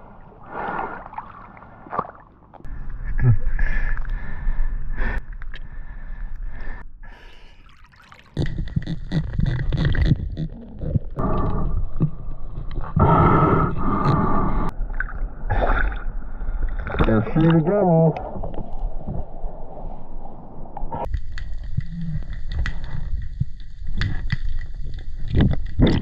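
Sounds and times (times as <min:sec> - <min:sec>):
water sloshing and gurgling: 0:00.0 - 0:26.0.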